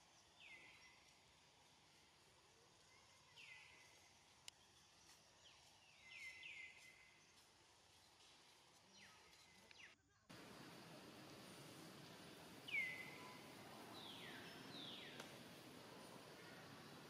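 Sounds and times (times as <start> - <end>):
background hiss: 0.0 - 17.0
faint bird chirps: 2.8 - 7.5, 12.6 - 17.0.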